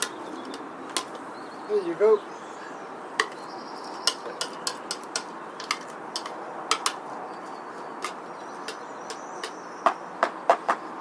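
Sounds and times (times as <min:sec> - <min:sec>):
sharp clicks and taps: 0:04.0 - 0:07.0.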